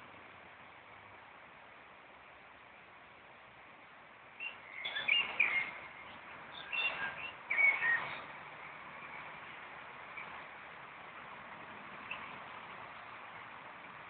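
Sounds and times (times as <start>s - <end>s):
steady hiss: 0.0s - 14.0s
songbird chirping: 4.3s - 10.5s, 11.9s - 13.6s.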